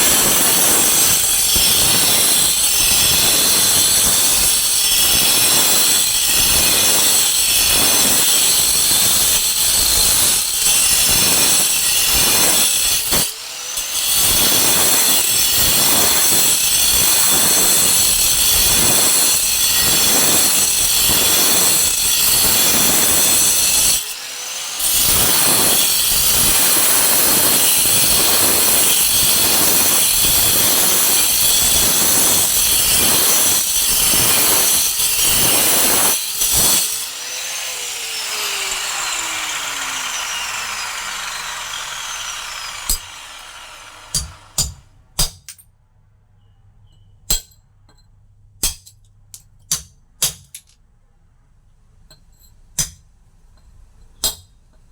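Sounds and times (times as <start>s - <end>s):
power tool grinding stone: 0.0s - 44.8s
tool spinning down whine: 19.7s - 33.4s, 34.1s - 44.6s.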